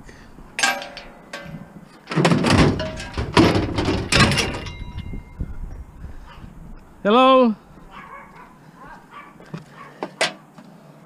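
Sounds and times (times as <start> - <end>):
metallic ring: 0.6 - 1.9, 4.1 - 5.5
scrap metal clanking and scraping: 0.6 - 5.4.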